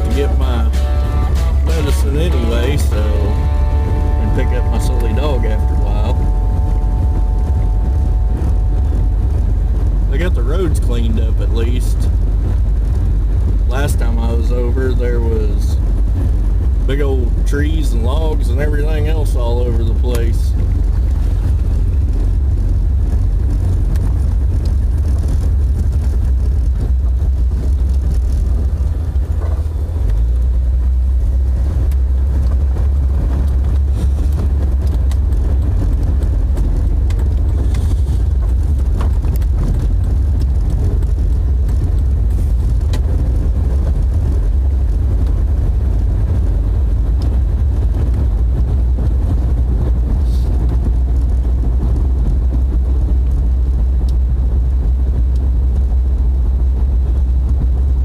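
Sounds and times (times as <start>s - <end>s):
road noise: 0.0s - 58.0s
vehicle engine droning: 0.0s - 58.0s.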